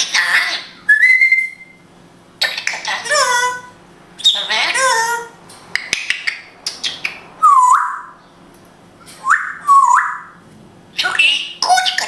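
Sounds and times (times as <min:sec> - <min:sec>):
parrot whistled call: 0:00.9 - 0:01.8, 0:06.9 - 0:08.2, 0:09.2 - 0:10.4
parrot clicking: 0:05.7 - 0:07.2.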